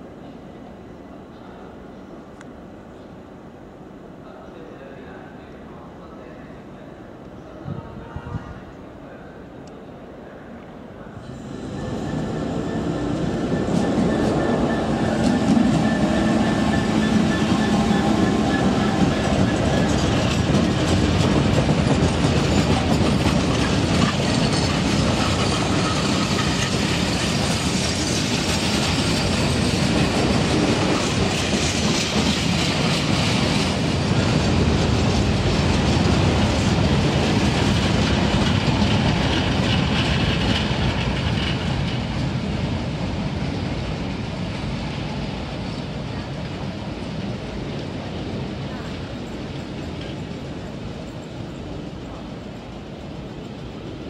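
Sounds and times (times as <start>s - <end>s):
freight wagon wheels rumbling and clattering: 16.7s - 33.8s.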